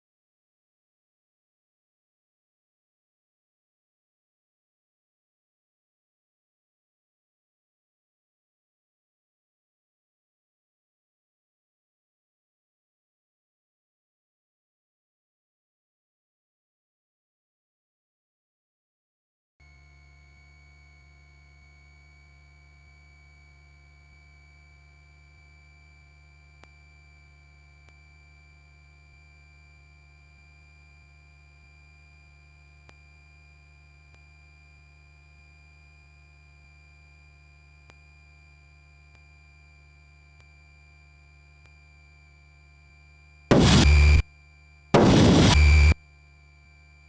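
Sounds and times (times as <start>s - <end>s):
high-pitched electrical whine: 43.5s - 44.3s, 45.0s - 46.8s.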